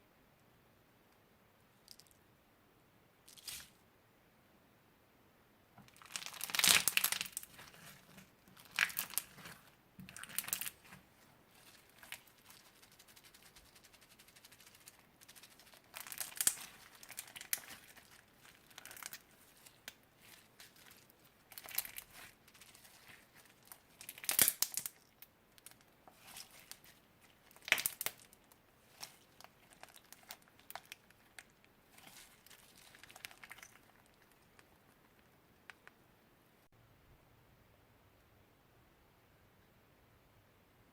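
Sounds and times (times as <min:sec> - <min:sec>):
slime crinkling and crackling: 0:05.9 - 0:35.9.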